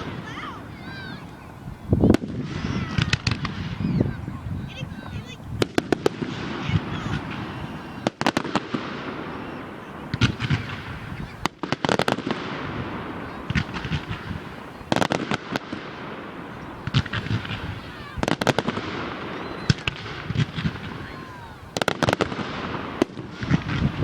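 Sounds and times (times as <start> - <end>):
fireworks bangs: 0.0 - 24.0
fireworks crackling: 0.0 - 24.0.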